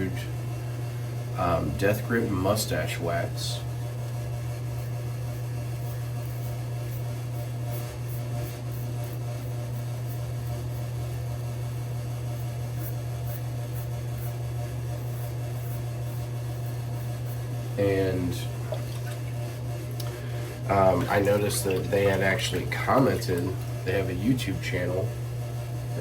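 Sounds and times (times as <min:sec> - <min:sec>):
steady low hum: 0:00.0 - 0:26.0
razor scraping stubble: 0:04.8 - 0:11.1, 0:12.3 - 0:25.0.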